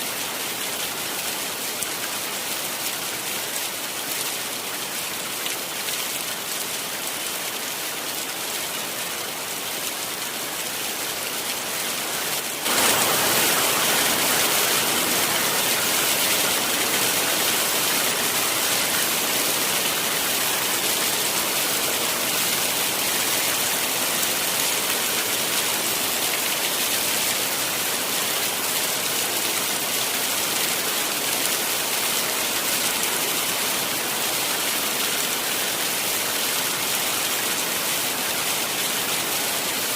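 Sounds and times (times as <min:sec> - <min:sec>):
heavy rain hissing: 0:11.8 - 0:39.9.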